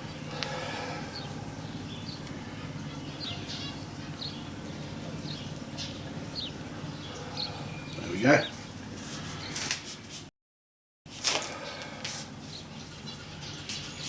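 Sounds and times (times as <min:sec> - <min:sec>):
steady low hum: 0:00.0 - 0:10.1
small bird chirping: 0:01.1 - 0:09.6.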